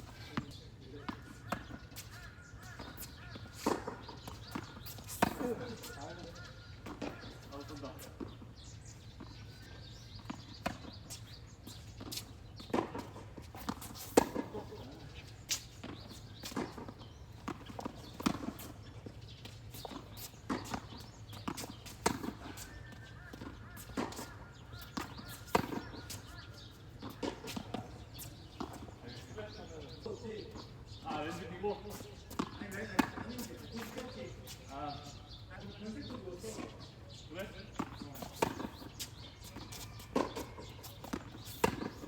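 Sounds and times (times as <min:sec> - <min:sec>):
tennis ball bouncing on court: 0:00.2 - 0:07.5, 0:09.2 - 0:14.8, 0:15.5 - 0:29.3, 0:31.9 - 0:34.6, 0:37.4 - 0:42.0
tennis racket hitting ball: 0:15.5 - 0:18.7, 0:19.8 - 0:26.4, 0:37.8 - 0:42.0.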